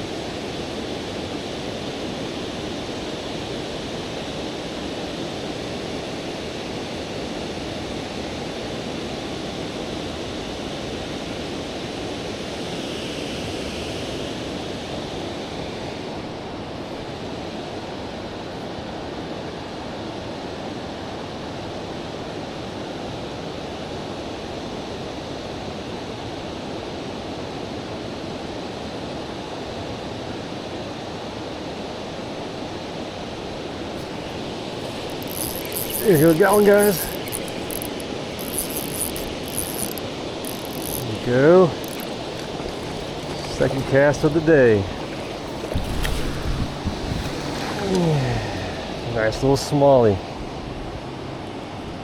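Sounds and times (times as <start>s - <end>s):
river current rushing: 33.6s - 51.4s.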